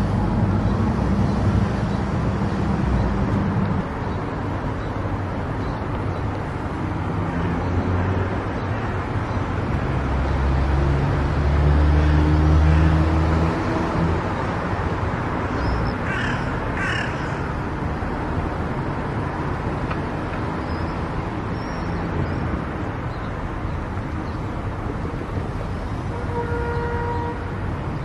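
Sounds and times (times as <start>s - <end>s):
car road and tyre noise: 0.0s - 28.0s.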